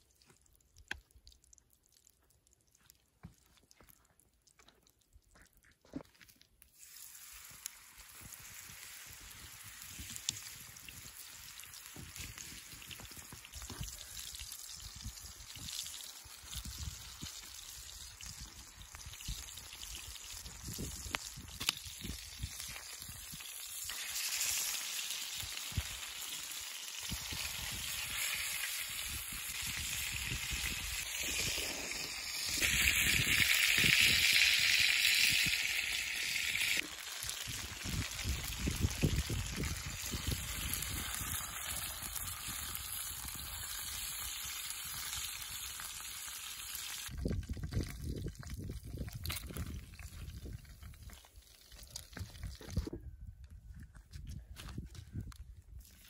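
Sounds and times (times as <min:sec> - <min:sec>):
patty sizzling in frying pan: 0:06.7 - 0:13.8, 0:14.5 - 0:47.2.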